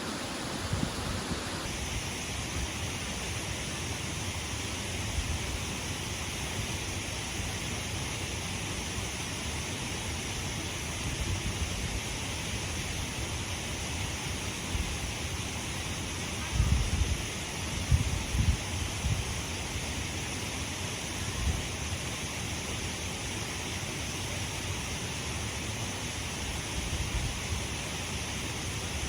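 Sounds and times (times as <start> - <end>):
waterfall rushing: 0.0 - 1.8.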